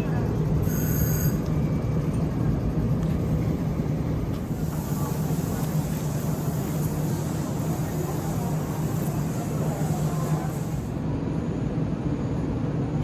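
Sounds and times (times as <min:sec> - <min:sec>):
electric train humming and rumbling: 0:00.0 - 0:13.0
hiss: 0:00.6 - 0:01.3, 0:04.5 - 0:10.9.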